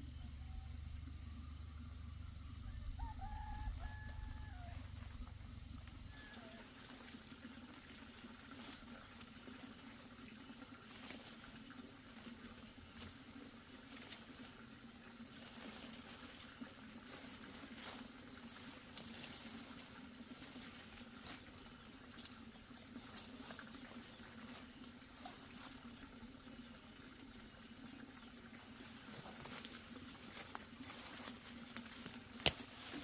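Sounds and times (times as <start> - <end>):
steady low hum: 0.0 - 9.3.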